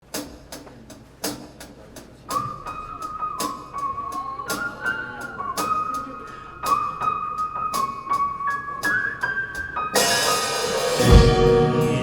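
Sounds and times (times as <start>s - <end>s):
high held melody note: 10.0s - 12.0s
light percussion hits: 10.0s - 12.0s.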